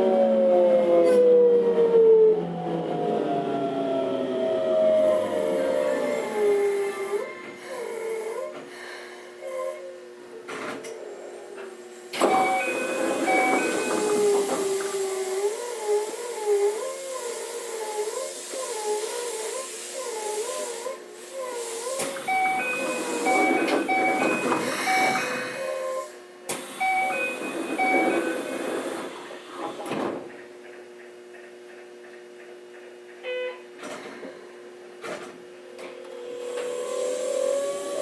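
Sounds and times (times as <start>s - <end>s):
train inverter rising whine: 0.0s - 9.4s, 10.1s - 17.0s, 22.0s - 29.7s, 30.3s - 38.0s
electronic chime tones: 12.3s - 13.9s, 26.8s - 28.1s.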